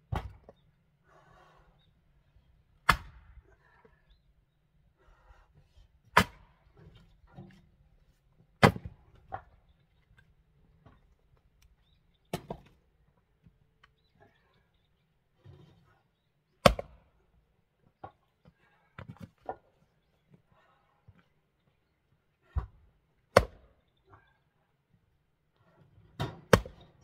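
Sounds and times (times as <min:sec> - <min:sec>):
axe splitting firewood: 0:02.8 - 0:03.3, 0:06.1 - 0:07.6, 0:08.6 - 0:09.5, 0:12.3 - 0:12.8, 0:16.6 - 0:17.2, 0:22.4 - 0:23.8, 0:26.2 - 0:27.0.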